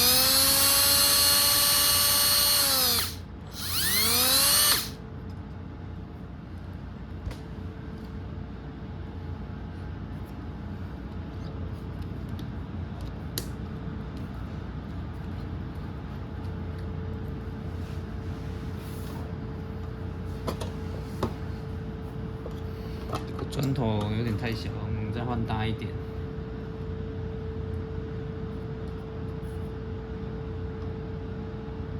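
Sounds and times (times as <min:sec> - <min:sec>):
electric drill whine: 0:00.0 - 0:05.0.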